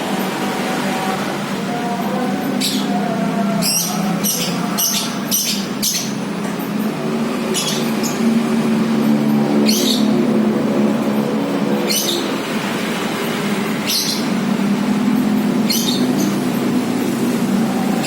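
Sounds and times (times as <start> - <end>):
mechanical hum: 0.0 - 18.0
bird chirping: 1.7 - 12.4, 13.2 - 16.8.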